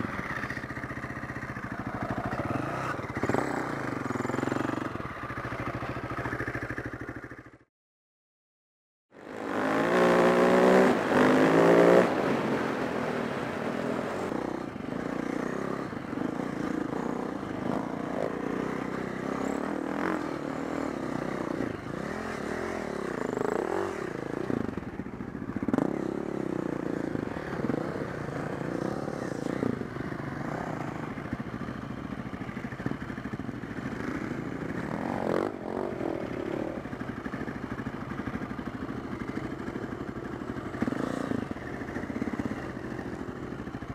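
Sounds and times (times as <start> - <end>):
dirt bike engine revving: 2.0 - 4.9, 9.3 - 12.6.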